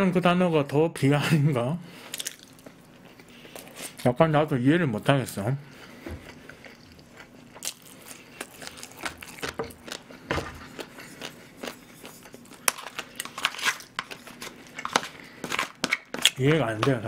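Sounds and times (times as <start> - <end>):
chewing and wet mouth sounds: 2.0 - 4.1, 5.7 - 17.0.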